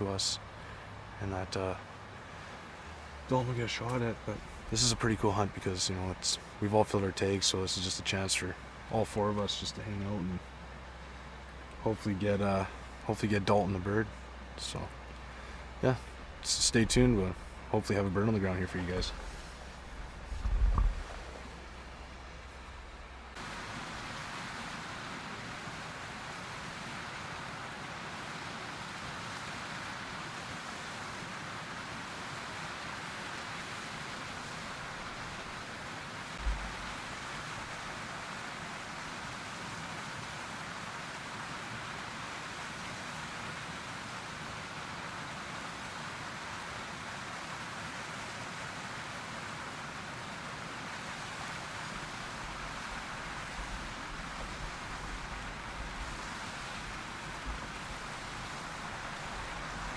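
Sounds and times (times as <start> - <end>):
rushing outdoor noise: 0.0 - 59.9
dull low thump: 19.0 - 23.2, 36.4 - 37.1.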